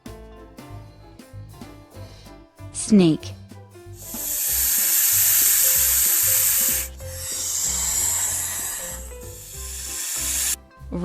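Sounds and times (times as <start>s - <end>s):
light background music: 0.0s - 11.0s
snake hissing: 4.0s - 10.6s.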